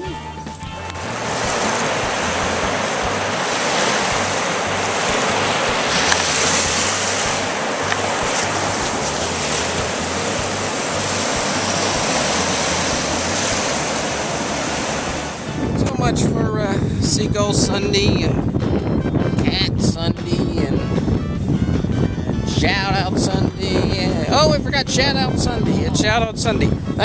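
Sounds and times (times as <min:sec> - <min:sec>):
ocean surf breaking: 0:00.7 - 0:18.2
wind buffeting microphone: 0:00.7 - 0:27.0.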